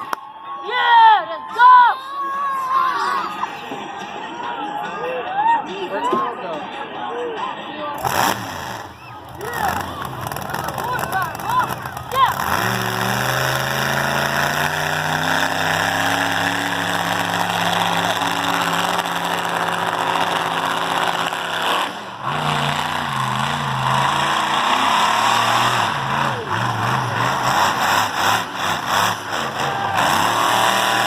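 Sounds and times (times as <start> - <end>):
monster truck engine revving: 7.9 - 31.0.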